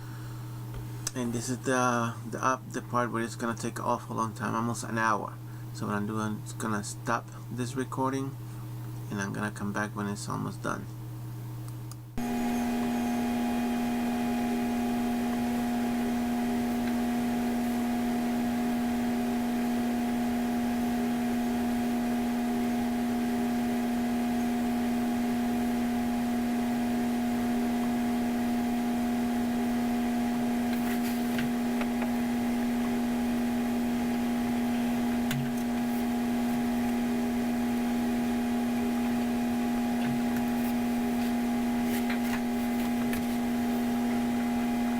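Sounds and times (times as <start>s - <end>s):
machine hum with whining tones: 0.0s - 9.5s, 10.8s - 44.9s.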